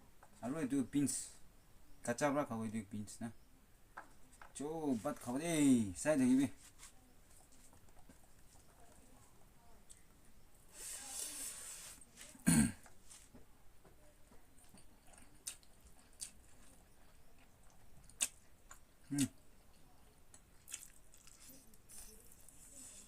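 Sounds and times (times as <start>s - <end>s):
close chewing with mouth clicks: 14.3s - 23.0s.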